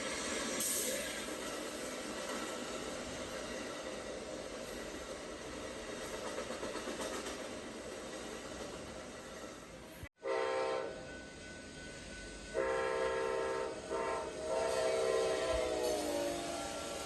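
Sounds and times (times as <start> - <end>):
passing train noise: 0.0 - 17.0
train air horn blasts: 10.2 - 11.1, 12.5 - 17.0.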